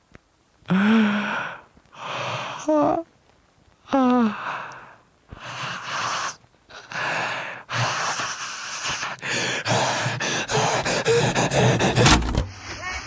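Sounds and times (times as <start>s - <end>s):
man laughing with wheezing breaths: 7.6s - 13.0s.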